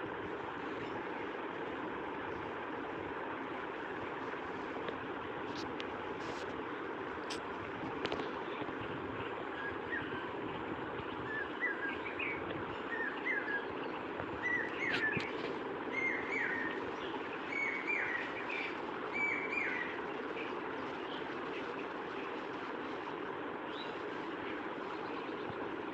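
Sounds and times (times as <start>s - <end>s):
steady background hiss: 0.0s - 25.9s
bird calling: 11.2s - 21.2s.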